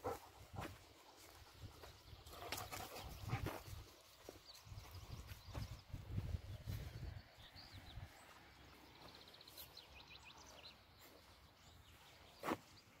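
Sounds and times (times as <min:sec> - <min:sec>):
faint birdsong: 0:00.0 - 0:13.0.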